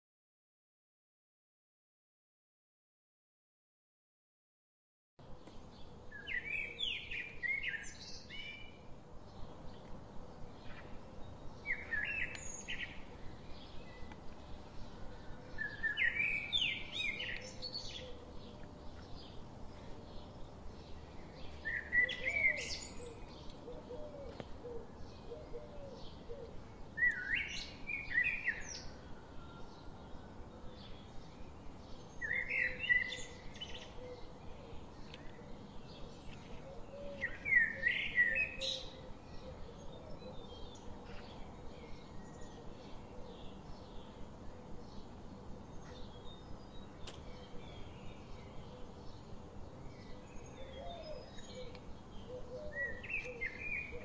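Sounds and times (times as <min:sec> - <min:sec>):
songbird warbling: 0:50.0 - 0:54.0.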